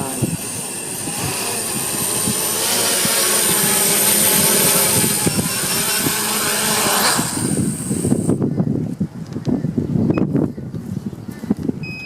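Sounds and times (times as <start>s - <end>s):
quadcopter propellers whining: 0.0s - 8.8s.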